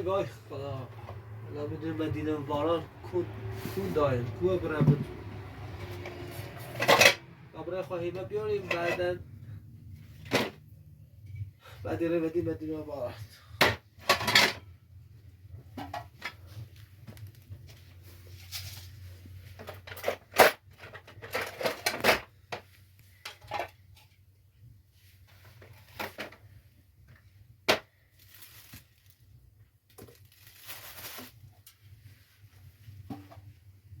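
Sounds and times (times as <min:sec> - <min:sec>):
objects knocking and rustling: 0:03.5 - 0:07.4, 0:09.9 - 0:11.5, 0:13.6 - 0:14.8, 0:15.4 - 0:24.4, 0:25.0 - 0:34.0
scraping rustles: 0:16.4 - 0:22.0, 0:30.1 - 0:33.0.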